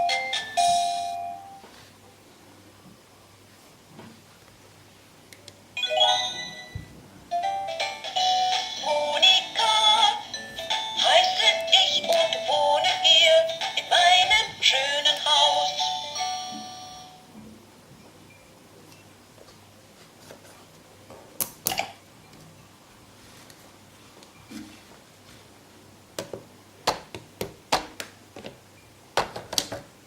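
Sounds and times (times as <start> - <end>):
electronic children's tune: 0.0 - 1.7, 5.8 - 17.3.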